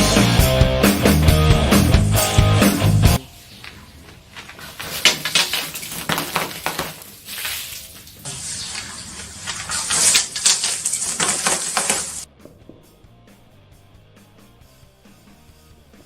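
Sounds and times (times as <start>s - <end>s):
soda fizzing hiss: 7.0s - 12.3s.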